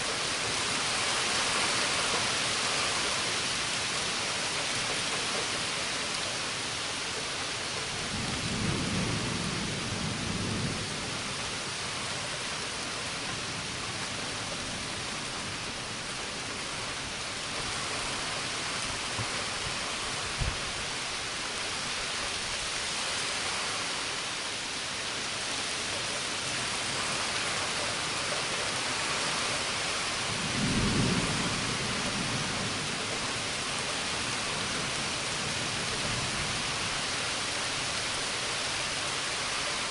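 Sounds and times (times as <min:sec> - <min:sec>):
heavy rain hissing: 0:00.0 - 0:39.9
thunder rumbling: 0:08.0 - 0:11.4, 0:30.2 - 0:37.0.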